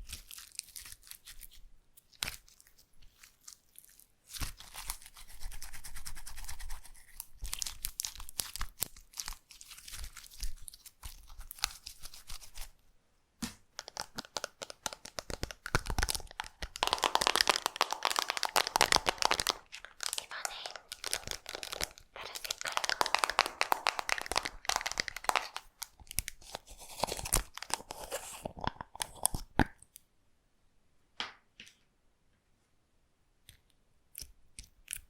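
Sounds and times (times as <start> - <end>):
slime crackling and popping: 7.1 - 12.0, 13.7 - 27.9.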